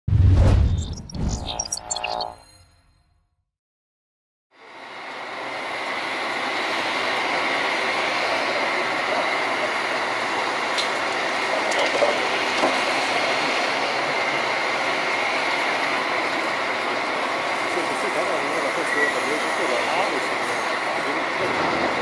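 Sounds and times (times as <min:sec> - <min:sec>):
high whine: 0:00.1 - 0:02.7
excavator: 0:05.3 - 0:22.0.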